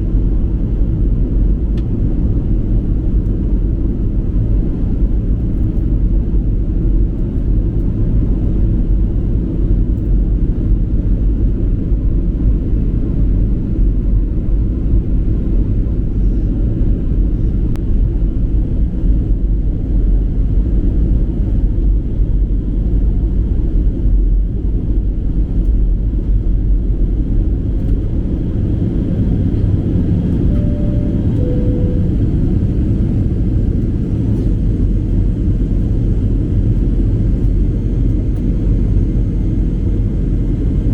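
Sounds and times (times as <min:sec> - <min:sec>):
airplane cabin engine roar: 0:00.0 - 0:40.9
two-note chime: 0:30.4 - 0:32.3.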